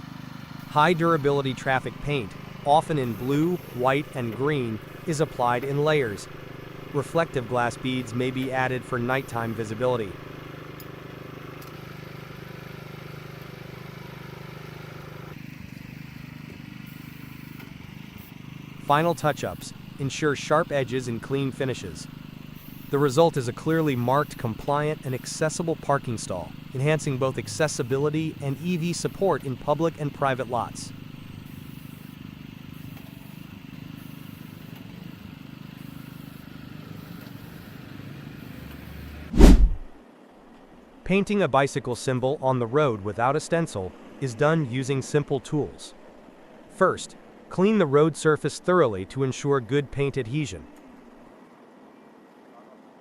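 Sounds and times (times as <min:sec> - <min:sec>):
engine humming steadily: 0:00.0 - 0:40.0
loud thump: 0:39.4 - 0:39.9.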